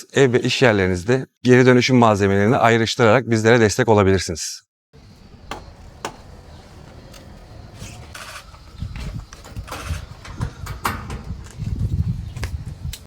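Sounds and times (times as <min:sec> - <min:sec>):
low work rumble: 0:05.0 - 0:11.4
sharp knocks and clacks: 0:05.2 - 0:07.4.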